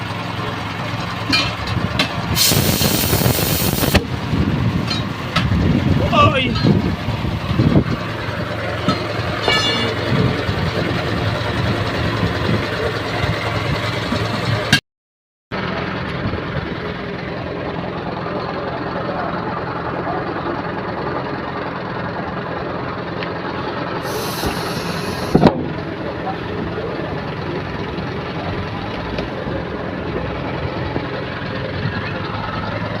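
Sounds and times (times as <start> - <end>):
vehicle engines and traffic rumble: 0.0 - 14.8, 15.5 - 33.0.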